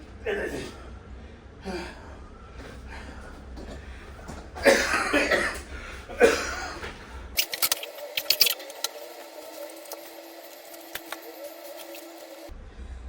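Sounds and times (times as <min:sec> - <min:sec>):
person coughing: 0:04.6 - 0:06.9.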